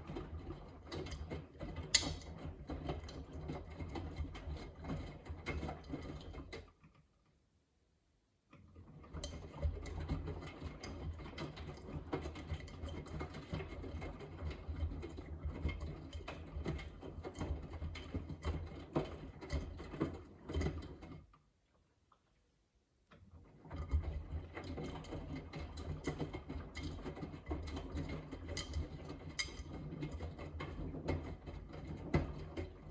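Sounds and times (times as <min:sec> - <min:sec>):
washing machine motor hum: 0:23.3 - 0:32.9.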